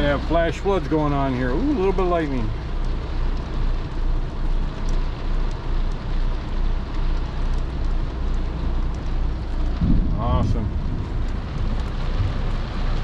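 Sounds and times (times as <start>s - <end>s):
heavy rain on a vehicle roof: 0.0s - 13.0s.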